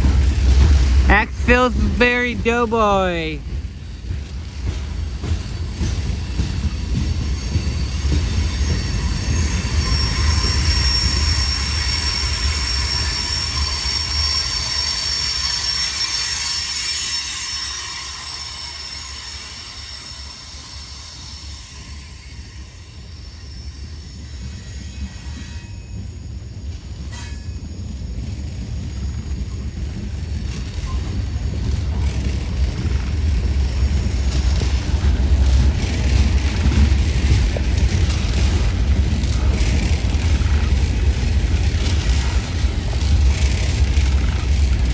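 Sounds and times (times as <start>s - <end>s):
high wheel squeal: 7.2s - 28.5s.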